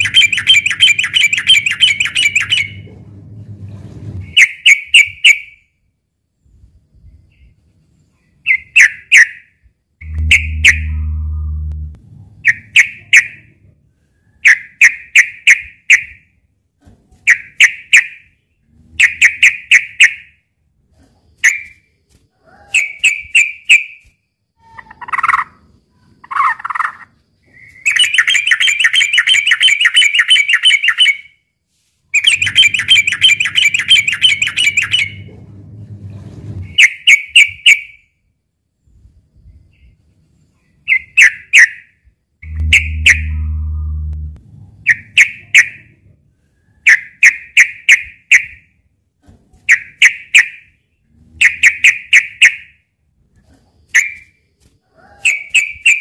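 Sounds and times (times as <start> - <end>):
low hum: 2.7 - 4.3, 10.0 - 12.8, 32.4 - 36.8, 42.4 - 45.2
bulbul singing: 10.0 - 13.2, 42.4 - 45.4.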